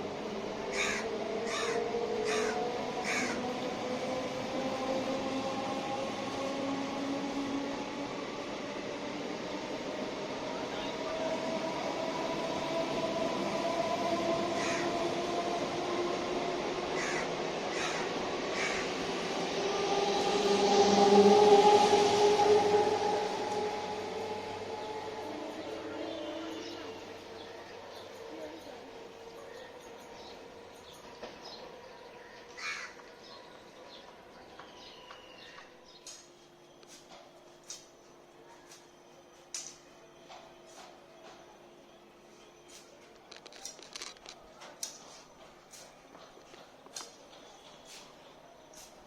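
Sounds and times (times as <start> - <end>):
crow cawing: 0.7 - 3.4, 14.6 - 14.9, 17.0 - 18.9, 32.6 - 33.0.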